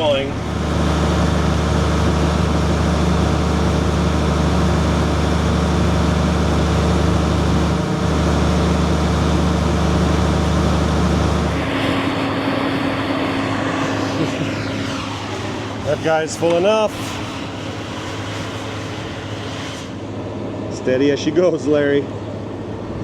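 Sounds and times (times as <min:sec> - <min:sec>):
thin high hum: 0:00.0 - 0:20.8
large vehicle engine droning: 0:00.0 - 0:23.0.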